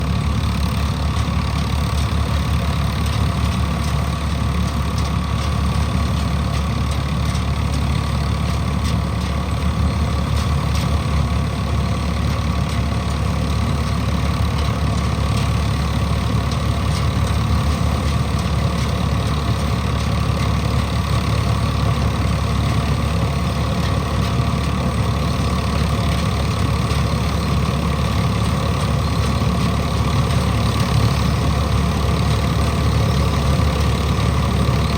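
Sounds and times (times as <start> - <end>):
combine harvester diesel engine: 0.0 - 34.9.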